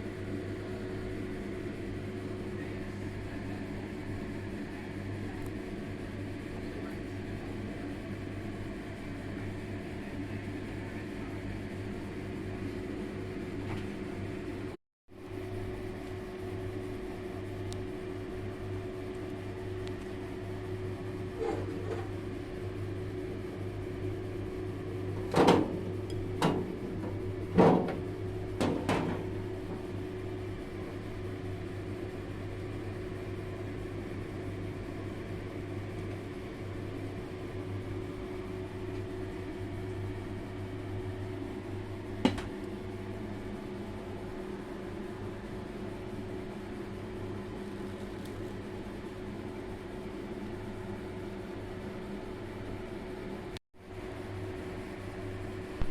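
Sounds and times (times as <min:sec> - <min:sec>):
kitchen appliance humming: 0:17.8 - 0:48.8.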